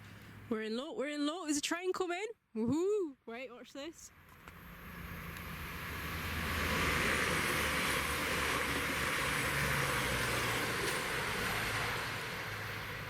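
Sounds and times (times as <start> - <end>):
low engine hum: 4.1 - 13.0
train wheels rumbling on rails: 4.3 - 13.0.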